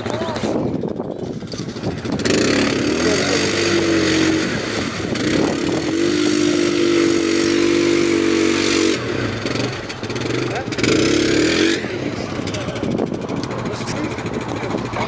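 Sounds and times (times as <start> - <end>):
atv engine at high revs: 1.2 - 15.0.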